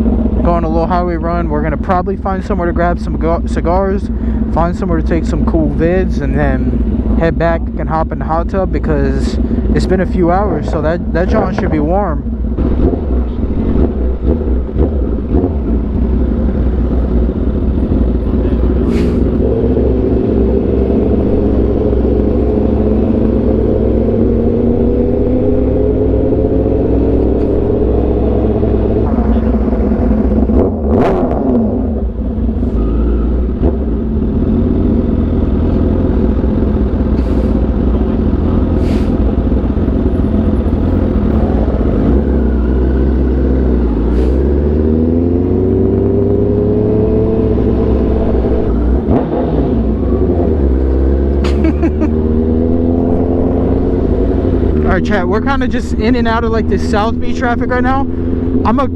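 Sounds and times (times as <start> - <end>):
passing vehicle engine: 0.0 - 58.9
sportbike engine running: 9.3 - 25.2.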